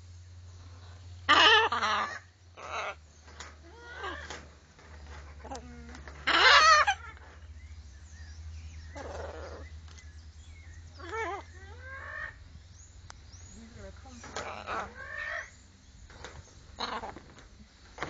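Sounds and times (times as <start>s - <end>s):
steady low hum: 0.0s - 18.0s
parrots squawking: 1.3s - 3.0s, 3.6s - 4.5s, 5.1s - 7.5s, 8.9s - 9.7s, 10.9s - 12.4s, 14.2s - 15.6s, 16.8s - 17.2s.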